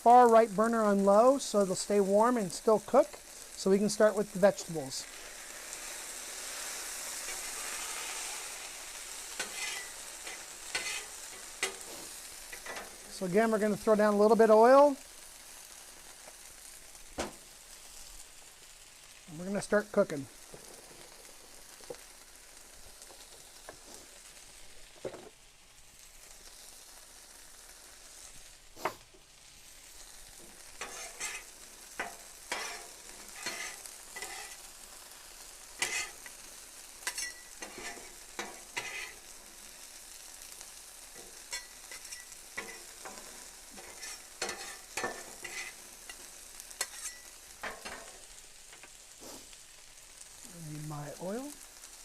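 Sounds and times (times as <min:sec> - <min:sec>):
vegetables sizzling in oil: 0:00.0 - 0:52.0
spatula scraping griddle: 0:05.1 - 0:14.6, 0:23.0 - 0:25.3, 0:30.2 - 0:40.4, 0:41.1 - 0:49.6.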